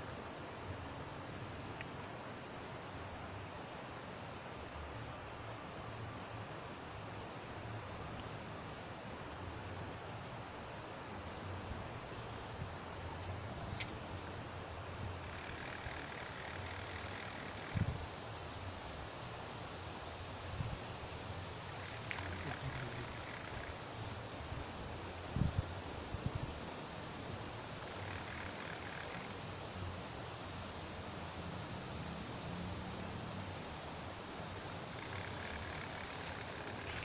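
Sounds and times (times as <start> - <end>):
insect trill: 0.0 - 37.0
rattling buzz: 15.2 - 17.9, 21.7 - 23.8, 27.8 - 29.4, 34.9 - 37.0.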